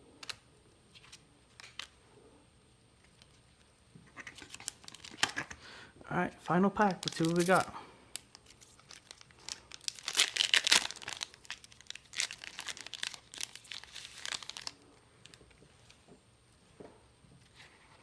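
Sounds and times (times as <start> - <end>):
wrapper tearing and crinkling: 4.3 - 5.5, 6.9 - 15.4.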